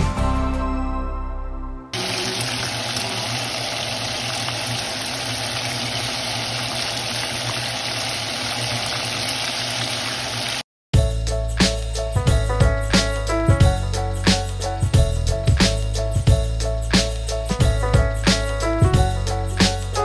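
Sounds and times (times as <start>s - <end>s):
music: 0.0s - 2.0s, 11.0s - 20.0s
chicken frying in hot oil: 2.0s - 10.6s.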